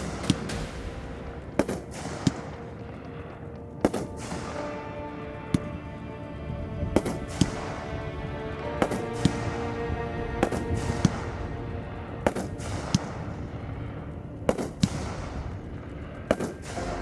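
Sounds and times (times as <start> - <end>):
fireworks sharp reports: 0.0 - 17.0
music: 0.0 - 17.0.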